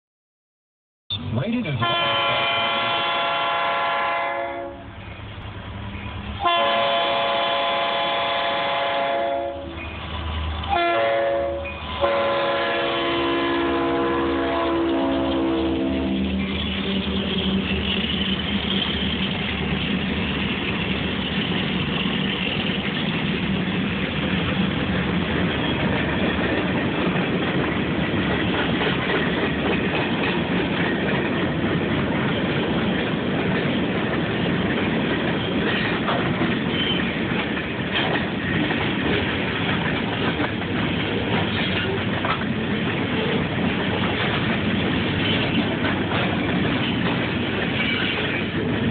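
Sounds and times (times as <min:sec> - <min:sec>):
freight train wheels clattering: 0:11.6 - 0:48.9.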